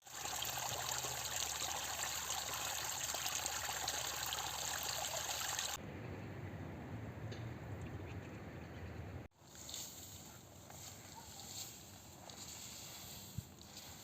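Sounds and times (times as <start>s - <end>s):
water trickling and running: 0.0s - 5.8s.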